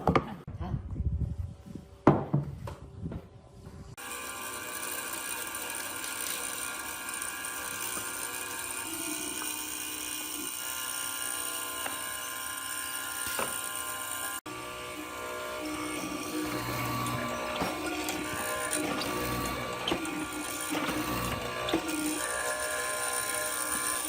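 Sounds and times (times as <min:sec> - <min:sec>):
power tool motor whining: 0:04.0 - 0:24.0.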